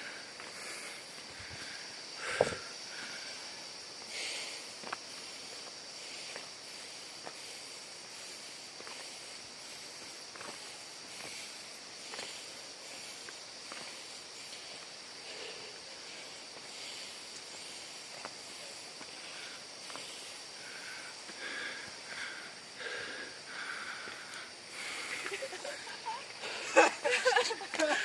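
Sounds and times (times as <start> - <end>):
high insect drone: 0.0 - 28.0
steady hiss: 0.0 - 28.0
light footsteps: 4.7 - 15.0.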